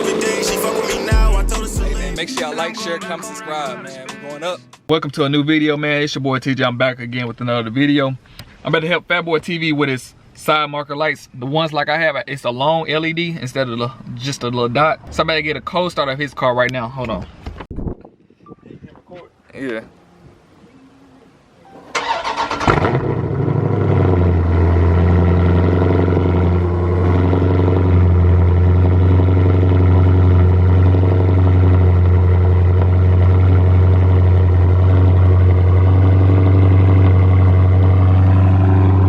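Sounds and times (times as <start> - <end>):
car engine cranking and starting: 21.8 - 39.0
car engine idling: 22.0 - 39.0.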